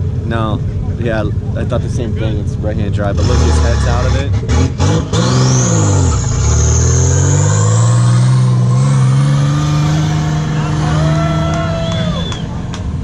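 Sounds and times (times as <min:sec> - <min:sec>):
car engine revving hard: 0:03.0 - 0:12.6.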